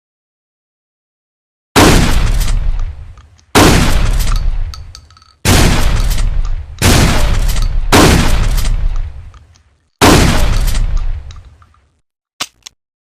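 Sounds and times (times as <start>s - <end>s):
loud shotgun shots echoing: 1.8s - 11.6s.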